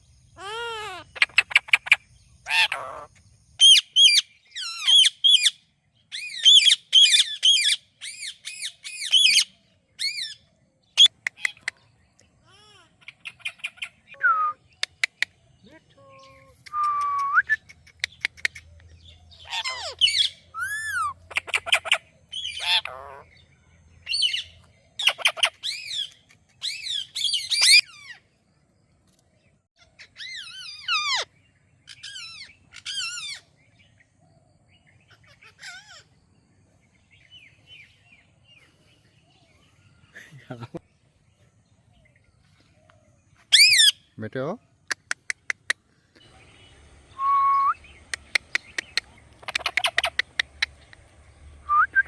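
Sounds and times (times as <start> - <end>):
parrot whistling and squawking: 19.4 - 23.2, 26.6 - 28.1, 30.1 - 31.3, 43.5 - 44.0.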